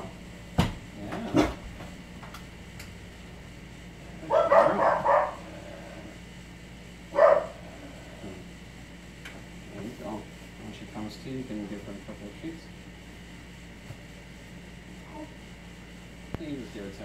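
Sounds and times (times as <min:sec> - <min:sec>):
dog barking: 0:04.2 - 0:05.5, 0:07.1 - 0:07.6.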